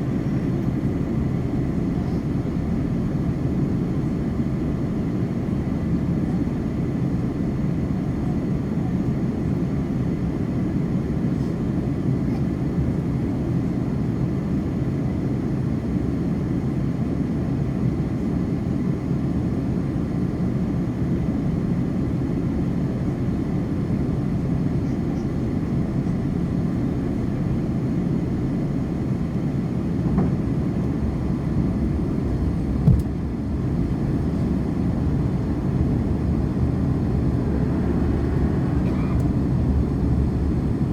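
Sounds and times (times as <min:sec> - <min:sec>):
airplane cabin engine noise: 0:00.0 - 0:40.9
short knock: 0:32.8 - 0:33.1.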